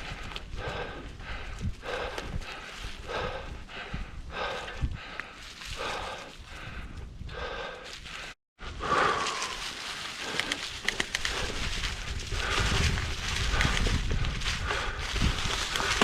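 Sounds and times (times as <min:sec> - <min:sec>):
bicycle rumbling on dirt trail: 0:00.0 - 0:16.0.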